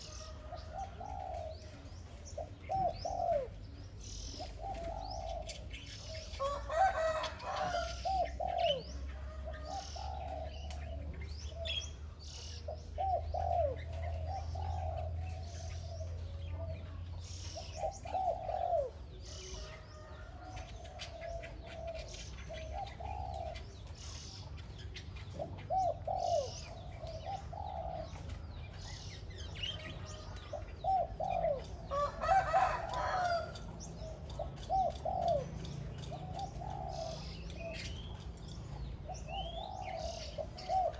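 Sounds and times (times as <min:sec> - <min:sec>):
dove cooing: 0:00.0 - 0:40.9
small birds chirping: 0:00.0 - 0:40.9.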